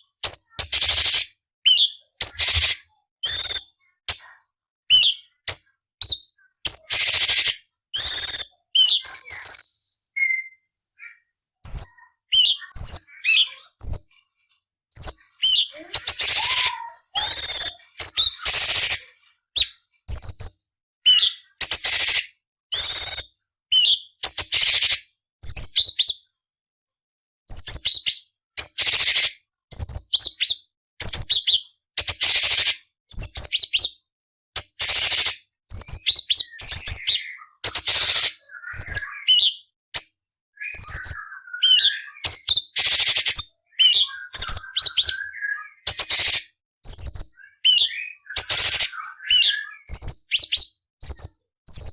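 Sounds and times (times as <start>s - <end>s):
bird singing whistled notes: 0.0s - 3.8s, 4.9s - 14.1s, 14.9s - 19.0s, 19.6s - 26.3s, 34.8s - 39.8s, 40.6s - 51.9s.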